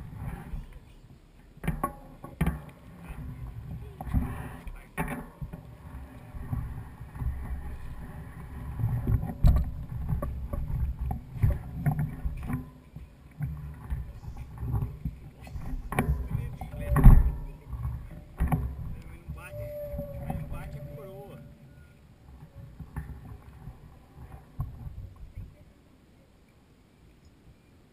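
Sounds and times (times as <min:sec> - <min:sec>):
low rumble on microphone: 0:00.0 - 0:26.3
bike knocks and rattles: 0:01.4 - 0:20.8.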